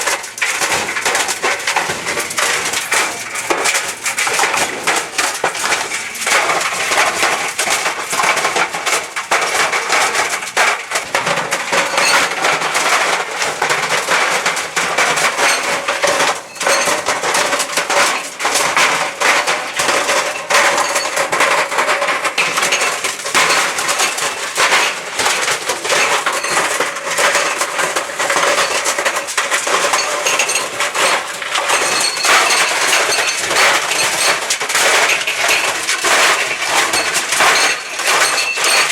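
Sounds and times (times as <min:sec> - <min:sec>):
laptop clattering in a dryer drum: 0:00.0 - 0:38.9.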